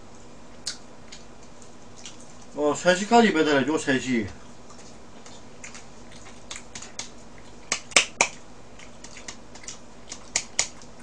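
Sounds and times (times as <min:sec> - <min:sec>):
wet mouth chewing clicks: 0:00.6 - 0:02.5, 0:04.6 - 0:11.0.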